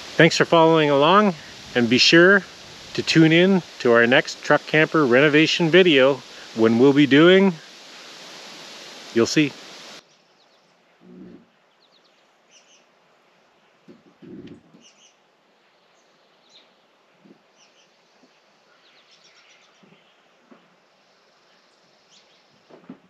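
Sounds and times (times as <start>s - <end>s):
faint bird chirps: 10.0s - 13.3s, 14.2s - 22.8s.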